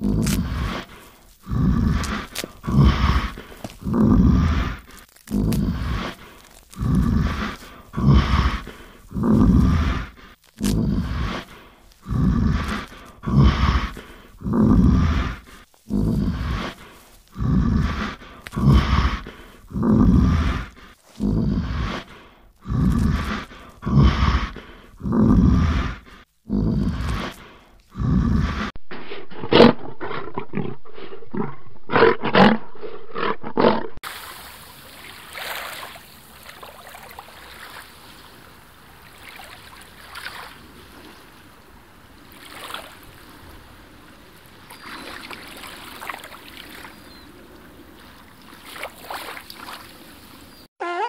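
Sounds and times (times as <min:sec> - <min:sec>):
bear growling and huffing: 0:00.0 - 0:34.1.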